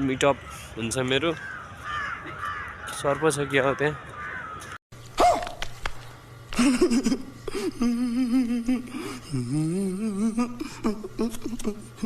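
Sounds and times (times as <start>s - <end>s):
person humming a tune: 6.6s - 12.0s.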